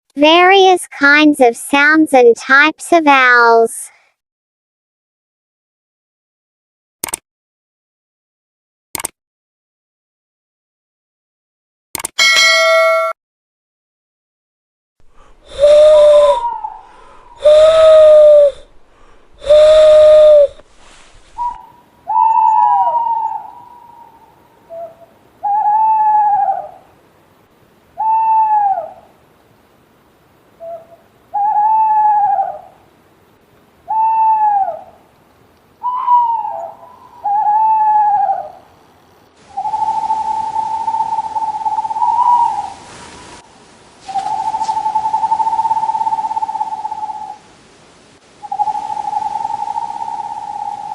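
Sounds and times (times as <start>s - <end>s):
higher short owl hoots: 15.0s - 27.0s, 28.0s - 29.1s, 30.6s - 32.8s, 33.9s - 35.0s, 35.8s - 38.7s, 39.5s - 43.4s, 44.0s - 47.4s, 48.4s - 50.9s
low drawn-out owl hoots: 15.0s - 27.1s, 28.0s - 29.2s, 30.6s - 32.9s, 33.8s - 35.1s, 35.8s - 47.5s, 48.4s - 50.9s.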